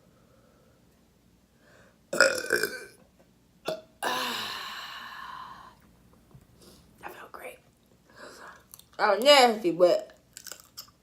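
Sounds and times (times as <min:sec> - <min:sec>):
woman burping: 0:02.2 - 0:03.0, 0:03.7 - 0:05.0.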